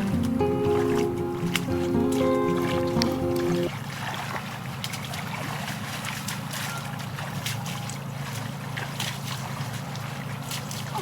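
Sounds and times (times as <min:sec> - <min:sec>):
background music: 0:00.0 - 0:03.7.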